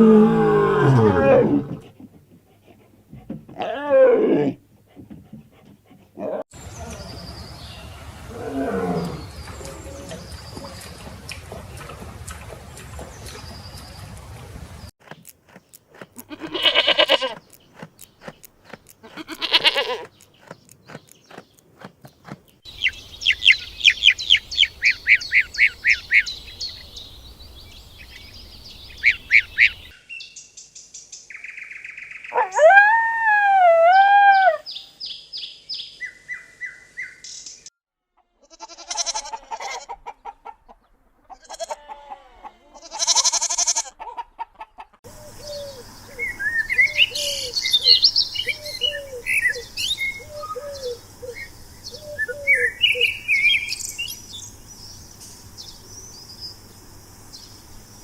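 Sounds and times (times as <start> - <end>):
drawn-out animal calls: 16.0 - 20.8.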